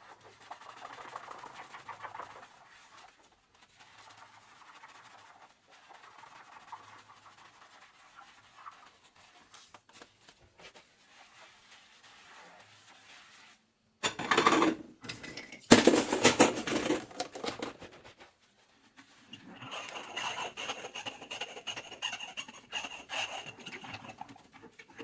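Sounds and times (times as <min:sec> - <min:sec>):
dishes rubbing and scraping: 0:14.0 - 0:18.3, 0:19.0 - 0:25.0
noisy dish washing: 0:14.0 - 0:18.3, 0:19.0 - 0:25.0.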